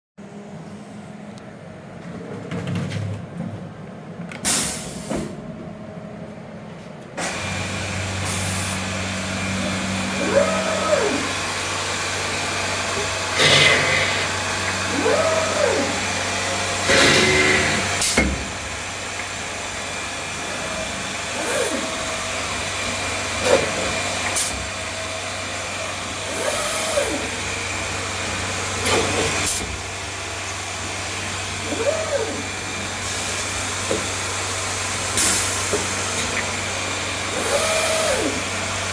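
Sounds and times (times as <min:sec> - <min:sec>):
motor whines rising and falling: 0:07.2 - 0:24.8, 0:34.9 - 0:38.8
woodworking machine hum: 0:07.2 - 0:38.9.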